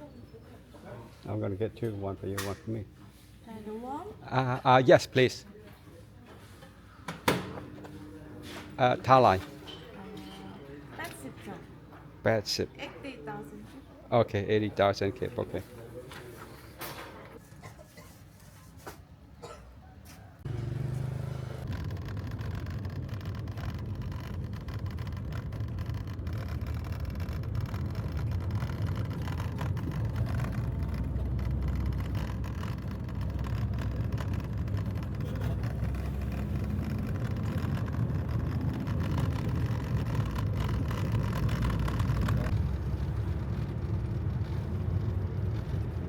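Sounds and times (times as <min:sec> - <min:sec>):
vehicle low rumble: 0:20.2 - 0:46.0.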